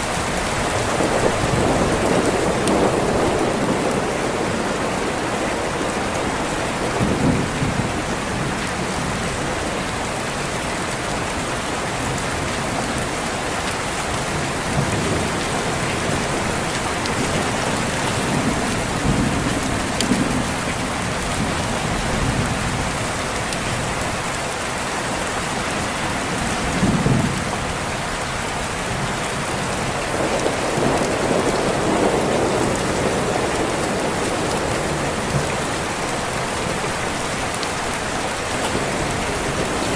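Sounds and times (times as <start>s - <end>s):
heavy rain: 0.0s - 39.9s
distant thunder rumbling: 0.2s - 9.4s, 14.1s - 23.2s, 28.9s - 39.9s.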